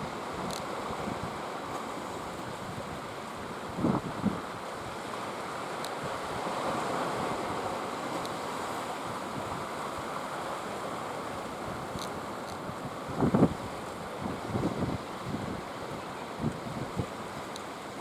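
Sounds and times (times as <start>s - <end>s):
faint high ticks: 0.4s - 0.7s, 8.2s - 8.4s, 11.4s - 12.8s, 17.4s - 17.7s.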